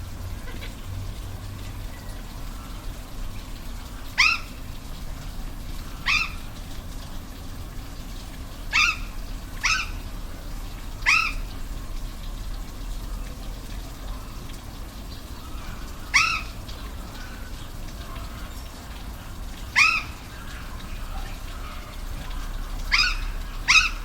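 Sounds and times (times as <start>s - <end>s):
falling water rushing: 0.0s - 24.0s
animal calling: 4.2s - 4.6s, 5.9s - 6.5s, 8.7s - 10.0s, 11.0s - 11.5s, 15.4s - 18.6s, 19.7s - 24.0s.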